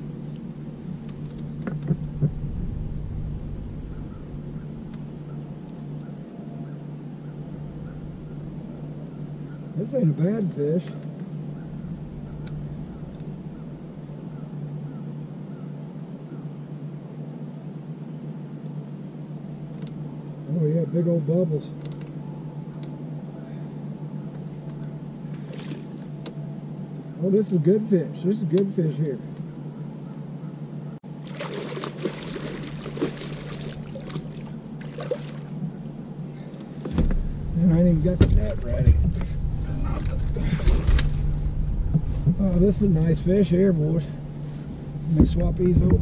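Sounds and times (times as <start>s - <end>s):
boat motor humming: 0.0s - 17.3s, 18.3s - 28.4s, 29.2s - 46.0s
water splashing and trickling: 31.2s - 35.6s.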